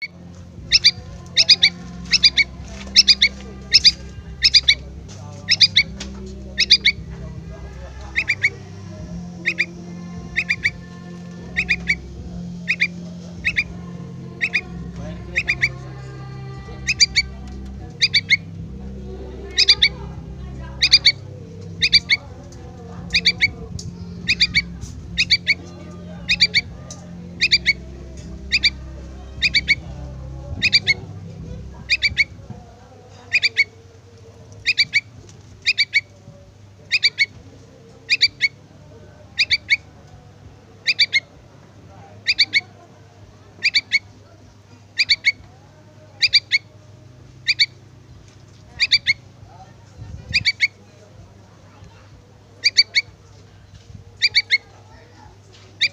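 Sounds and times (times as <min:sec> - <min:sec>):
bird chick begging calls: 0:00.0 - 0:04.8, 0:05.4 - 0:32.4, 0:33.1 - 0:33.8, 0:34.6 - 0:36.1, 0:36.9 - 0:37.3, 0:38.0 - 0:38.6, 0:39.4 - 0:39.9, 0:40.8 - 0:41.3, 0:42.2 - 0:42.7, 0:43.6 - 0:44.1, 0:45.0 - 0:45.4, 0:46.2 - 0:46.7, 0:47.4 - 0:47.8, 0:48.7 - 0:49.3, 0:50.3 - 0:50.7, 0:52.6 - 0:53.1, 0:54.2 - 0:54.9.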